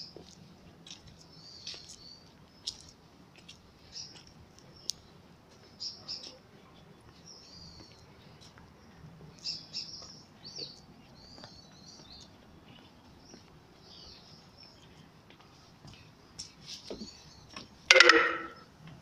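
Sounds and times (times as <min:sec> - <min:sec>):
birds chirping faintly: 0:00.0 - 0:18.9
loud metallic clang: 0:17.9 - 0:18.6.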